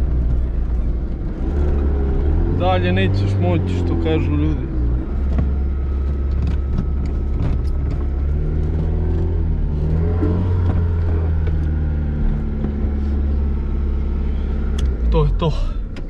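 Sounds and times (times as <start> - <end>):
car engine running: 0.0 - 16.0
car body knocks and rattles: 5.2 - 9.2.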